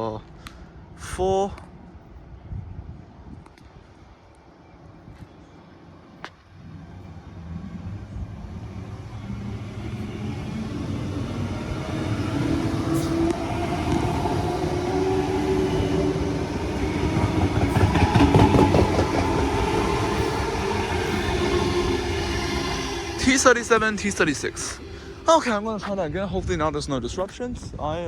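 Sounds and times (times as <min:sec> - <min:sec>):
electric train passing: 0:05.8 - 0:27.3
train whine: 0:05.9 - 0:27.4
wheels clicking over rail joints: 0:16.2 - 0:20.0.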